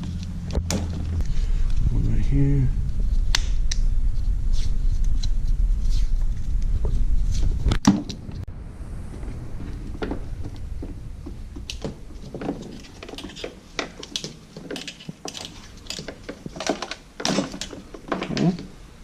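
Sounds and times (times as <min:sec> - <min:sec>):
low rumble: 0:00.0 - 0:13.8
clicks and rattles of plastic parts: 0:11.6 - 0:18.8.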